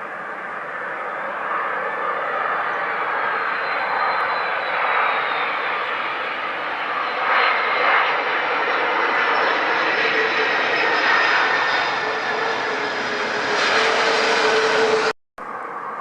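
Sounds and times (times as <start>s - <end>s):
airplane engines running: 0.0s - 16.0s.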